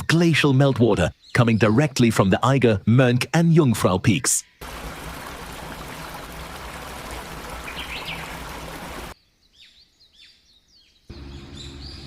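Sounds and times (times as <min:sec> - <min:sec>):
small birds chirping: 0:04.1 - 0:12.0
waterfall rushing: 0:04.6 - 0:09.2.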